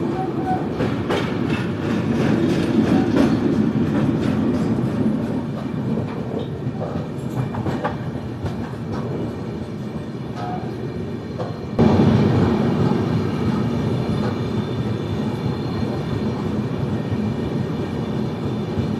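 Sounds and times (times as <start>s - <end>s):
train rumbling at speed: 0.0s - 18.9s
wheels clicking over rail joints: 0.4s - 9.3s.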